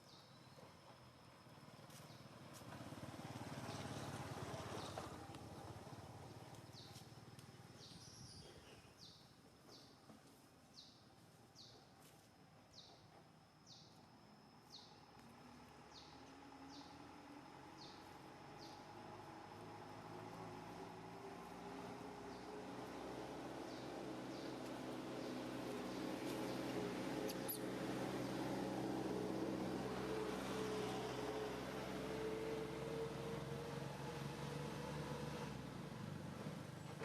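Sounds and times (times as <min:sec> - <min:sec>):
bird chirping: 0:07.7 - 0:10.0, 0:23.6 - 0:28.5.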